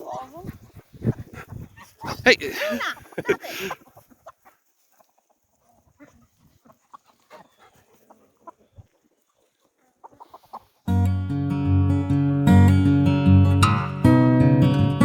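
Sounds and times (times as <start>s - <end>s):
chickens clucking: 0.0s - 10.9s
acoustic guitar music: 10.9s - 15.0s.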